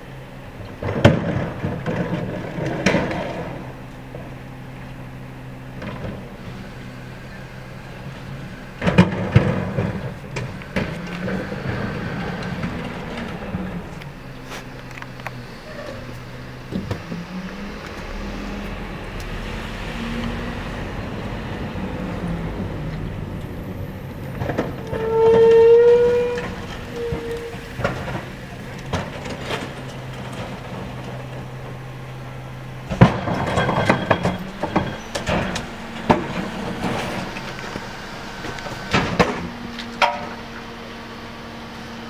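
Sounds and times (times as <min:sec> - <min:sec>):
garbage truck engine hum: 0:00.0 - 0:42.0
clanks and bangs: 0:05.7 - 0:32.0, 0:32.8 - 0:40.7
loud rising tone: 0:11.5 - 0:27.7.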